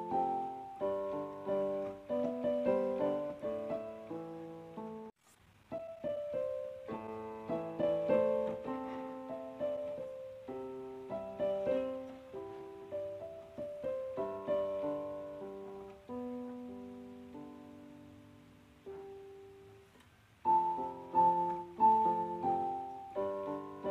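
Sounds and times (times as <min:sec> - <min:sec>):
solo piano melody: 0:00.0 - 0:23.9.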